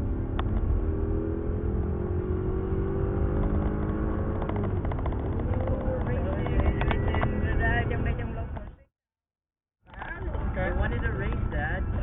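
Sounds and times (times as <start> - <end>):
car engine accelerating hard: 0.0 - 8.6.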